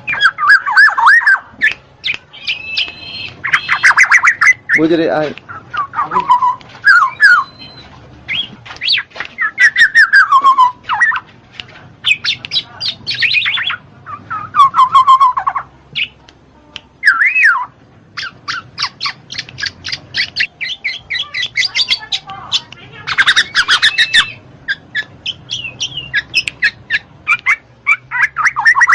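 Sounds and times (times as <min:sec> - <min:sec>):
bird whistles and squawks: 0:00.0 - 0:04.9, 0:05.5 - 0:11.3, 0:12.0 - 0:16.2, 0:17.0 - 0:28.9
bird chirps: 0:00.0 - 0:11.3, 0:12.0 - 0:16.2, 0:17.0 - 0:28.9.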